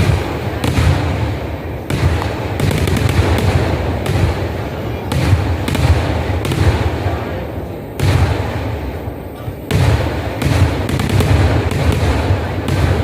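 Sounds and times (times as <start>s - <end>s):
fireworks booming: 0.0s - 13.0s
sharp firework cracks: 0.0s - 13.0s.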